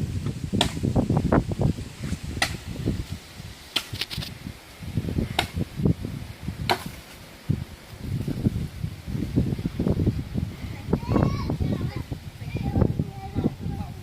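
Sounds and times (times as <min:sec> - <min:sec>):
axe chopping firewood: 0:00.6 - 0:00.9, 0:02.4 - 0:02.6, 0:03.7 - 0:04.2, 0:05.2 - 0:05.6, 0:06.6 - 0:07.2.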